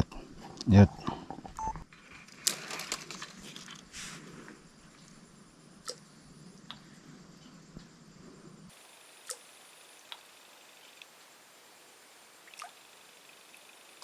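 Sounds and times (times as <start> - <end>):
faint clicks and soft rustles: 0.4 - 5.2.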